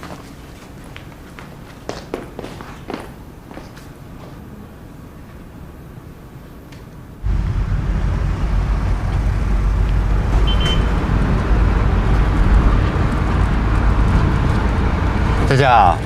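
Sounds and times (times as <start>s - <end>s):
car road and engine rumble: 7.2s - 16.0s.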